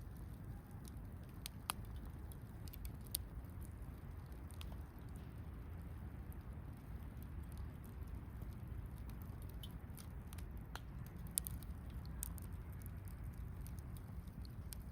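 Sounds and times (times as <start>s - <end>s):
campfire crackling: 0.0s - 14.9s.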